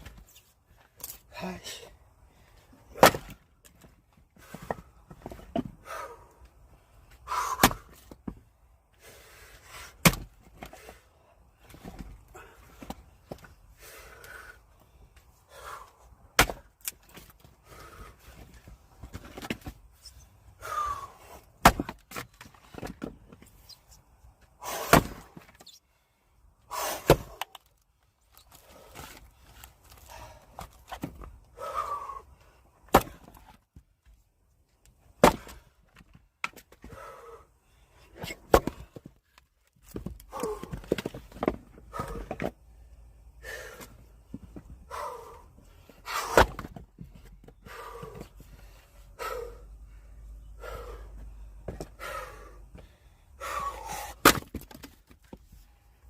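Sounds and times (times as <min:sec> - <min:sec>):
axe splitting firewood: 0:02.8 - 0:05.7, 0:07.3 - 0:08.3, 0:09.7 - 0:10.9, 0:15.6 - 0:18.0, 0:20.6 - 0:23.4, 0:24.6 - 0:25.6, 0:26.7 - 0:27.7, 0:32.8 - 0:33.6, 0:35.2 - 0:37.0, 0:38.2 - 0:39.0, 0:46.0 - 0:46.8, 0:53.4 - 0:55.2.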